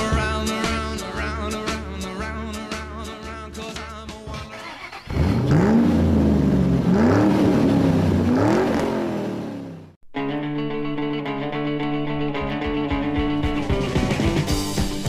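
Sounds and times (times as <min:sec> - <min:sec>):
music: 0:00.0 - 0:05.0, 0:10.1 - 0:15.0
car engine revving: 0:04.6 - 0:10.0.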